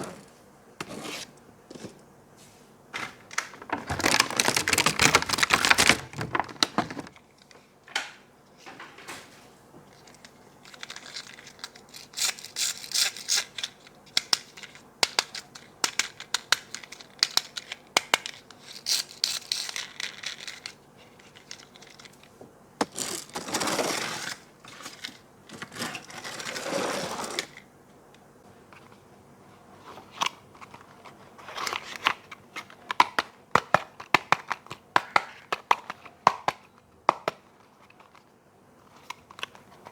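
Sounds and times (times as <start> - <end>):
plastic and cardboard rustling: 0.0 - 7.6.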